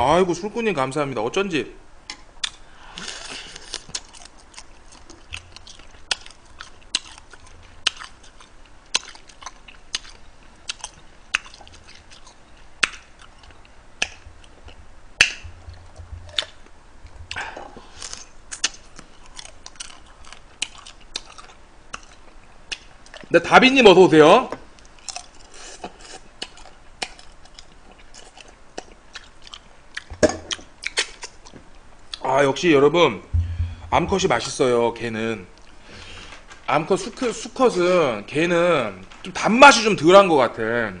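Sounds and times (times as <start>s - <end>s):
man chewing: 2.4s - 23.3s, 24.8s - 32.2s.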